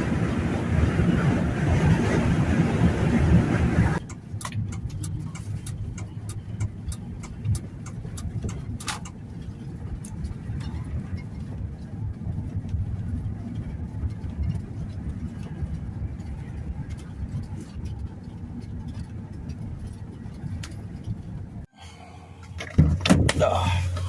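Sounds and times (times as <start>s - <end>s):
vehicle road and engine rumble: 0.0s - 24.0s
light clicks and ticks: 4.0s - 21.5s.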